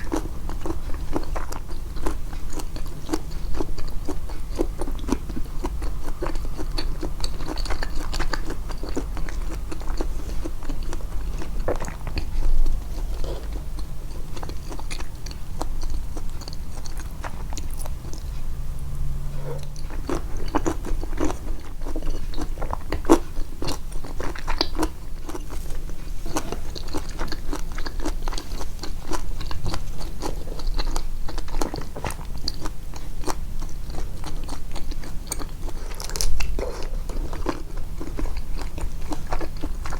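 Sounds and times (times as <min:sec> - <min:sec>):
close-miked chewing: 0:00.0 - 0:39.9
low hum: 0:17.5 - 0:21.2.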